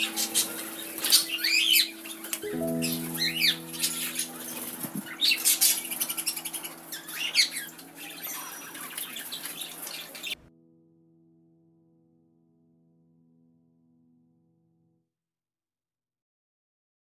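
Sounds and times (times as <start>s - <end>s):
bird chirps: 0.0s - 10.4s
soft background music: 0.0s - 13.8s.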